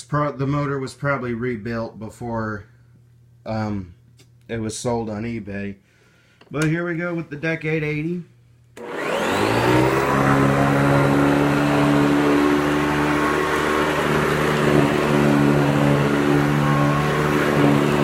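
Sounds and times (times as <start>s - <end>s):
vacuum cleaner motor whine: 8.8s - 18.0s.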